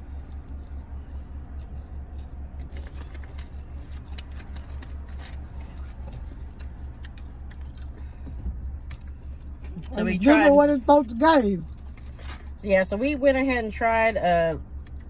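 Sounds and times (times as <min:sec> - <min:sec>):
crunchy chewing: 0:00.0 - 0:10.4, 0:11.6 - 0:12.6.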